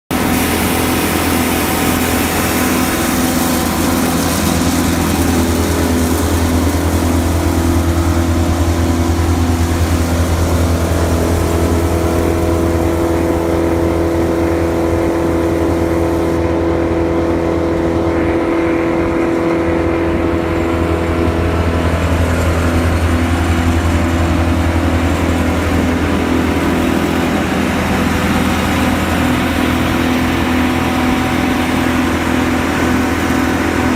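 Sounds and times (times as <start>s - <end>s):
wood chipper engine running: 0.1s - 33.9s.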